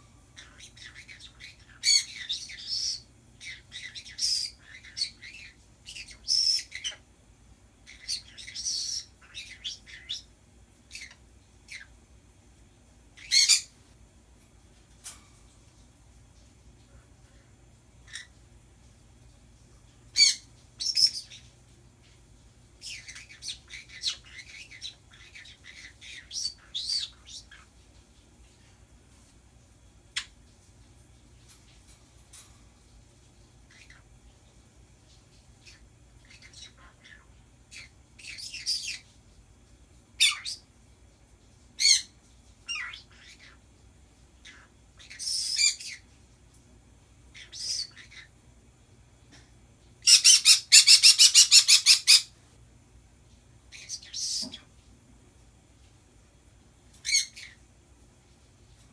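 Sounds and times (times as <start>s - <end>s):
pet birds squawking: 0.4s - 7.0s, 7.8s - 10.3s, 13.2s - 13.8s, 18.0s - 18.4s, 20.2s - 21.5s, 22.8s - 27.7s, 35.6s - 39.1s, 40.2s - 40.7s, 41.8s - 43.6s, 44.4s - 46.1s, 47.3s - 48.3s, 50.0s - 52.4s, 53.7s - 54.7s, 57.0s - 57.6s.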